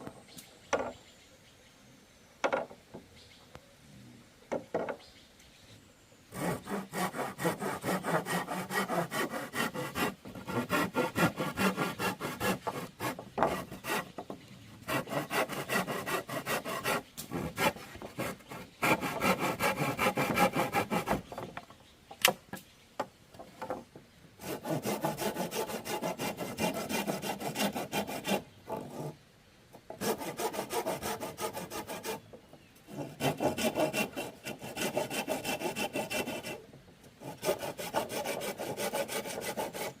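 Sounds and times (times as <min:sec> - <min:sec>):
hand saw cutting bamboo: 0:06.3 - 0:14.2, 0:14.8 - 0:21.3, 0:24.4 - 0:29.2, 0:30.0 - 0:32.2, 0:32.9 - 0:36.6, 0:37.2 - 0:40.0.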